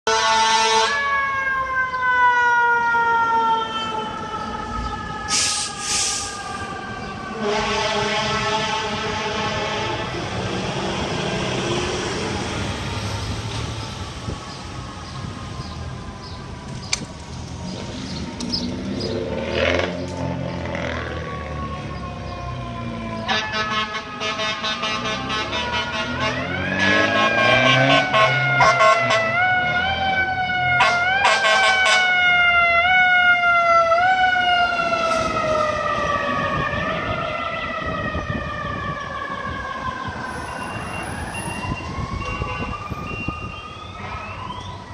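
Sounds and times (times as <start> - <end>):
short sharp siren blasts: 0.1 - 1.4, 22.9 - 44.9
fire truck engine rumbling: 0.1 - 44.9
second siren rising: 0.1 - 44.9.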